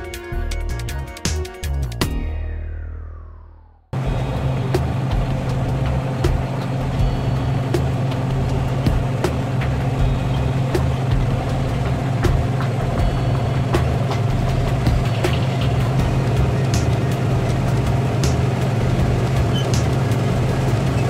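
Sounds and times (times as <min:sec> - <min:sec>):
diesel engine running under load: 0:04.0 - 0:21.0.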